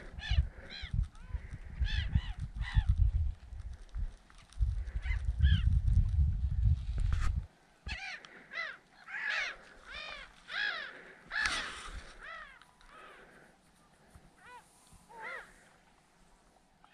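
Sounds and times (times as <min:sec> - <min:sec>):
bird calling: 0:07.8 - 0:15.8.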